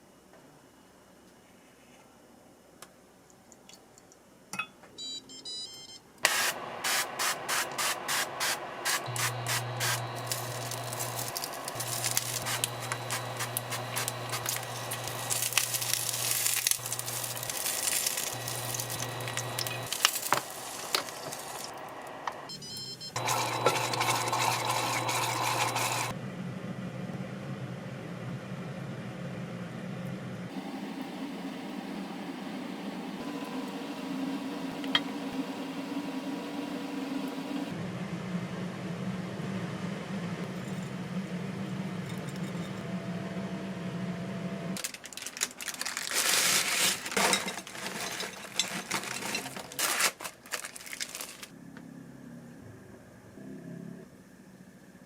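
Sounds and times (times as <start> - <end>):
soft beeps: 4.6 - 6.0, 22.5 - 23.2.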